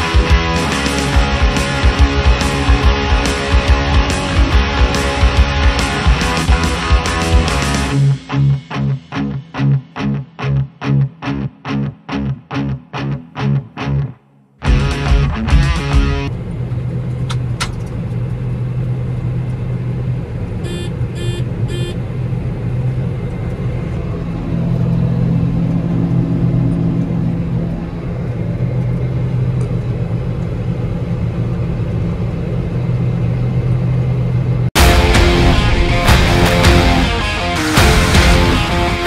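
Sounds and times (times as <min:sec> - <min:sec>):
combine harvester running: 0:15.6 - 0:39.0
short beeps: 0:20.6 - 0:22.0.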